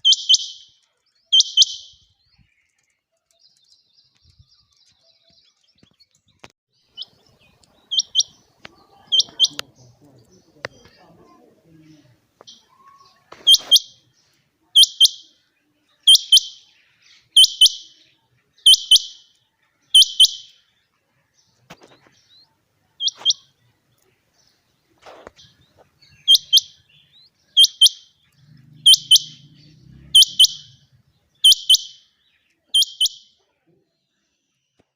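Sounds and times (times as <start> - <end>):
quail calling: 12.9 - 13.9, 26.2 - 26.8, 27.6 - 28.1, 28.7 - 30.8, 31.4 - 32.0, 32.8 - 33.2.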